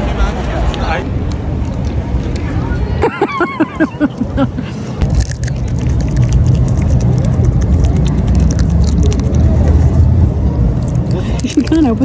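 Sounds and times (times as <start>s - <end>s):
wind rumbling on microphone: 3.8s - 12.0s.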